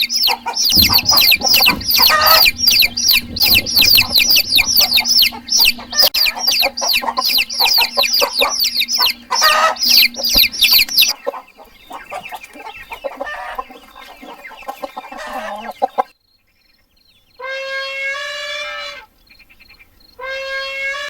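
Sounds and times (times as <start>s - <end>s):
chickens clucking: 0.0s - 16.2s.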